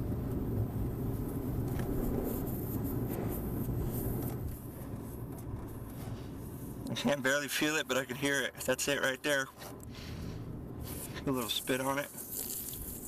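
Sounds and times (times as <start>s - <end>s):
low rumble: 0.0s - 7.0s
gas hissing from a leak: 9.8s - 13.0s.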